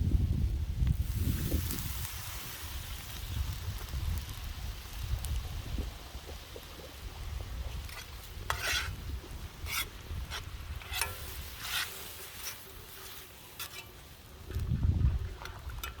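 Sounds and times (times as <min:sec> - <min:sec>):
food sizzling: 0:00.9 - 0:14.8
utensil scraping a pan: 0:07.8 - 0:09.0, 0:09.6 - 0:14.1.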